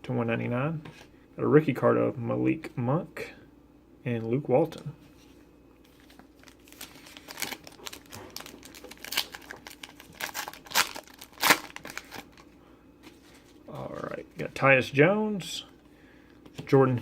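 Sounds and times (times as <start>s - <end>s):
card pack wrapper crinkling: 5.9s - 12.5s.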